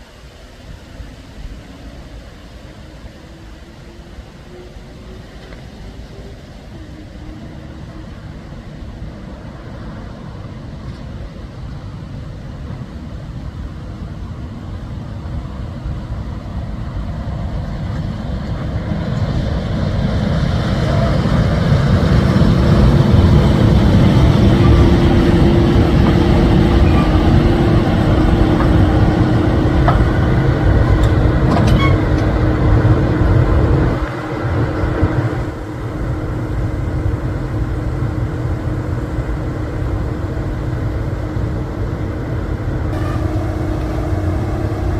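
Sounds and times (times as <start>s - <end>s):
locomotive rumbling: 0.0s - 44.9s.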